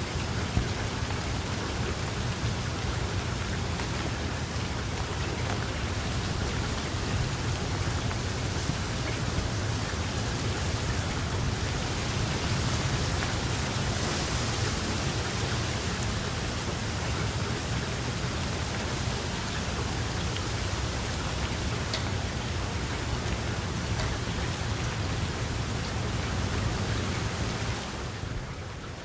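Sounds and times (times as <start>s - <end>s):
heavy rain: 0.0s - 29.0s
water drops ticking: 15.4s - 25.3s.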